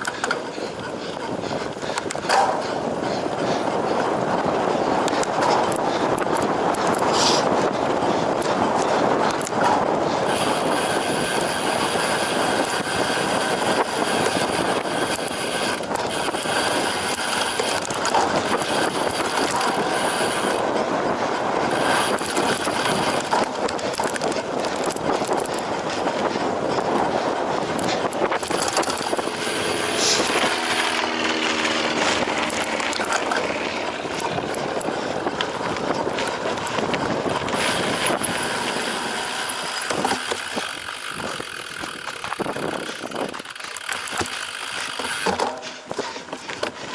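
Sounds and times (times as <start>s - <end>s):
bike frame rattling: 0.0s - 46.9s
bike tyre noise: 0.0s - 46.9s.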